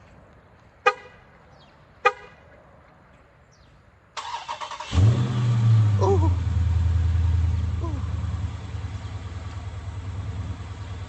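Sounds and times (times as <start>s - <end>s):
car engine starting: 4.2s - 11.0s.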